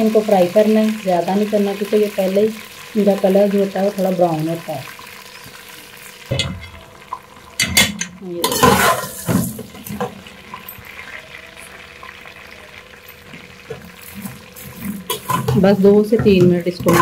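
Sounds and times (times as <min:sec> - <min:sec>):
noodles sizzling in oil: 0:00.0 - 0:17.0
spoon clattering against pan: 0:07.6 - 0:10.8, 0:15.0 - 0:17.0.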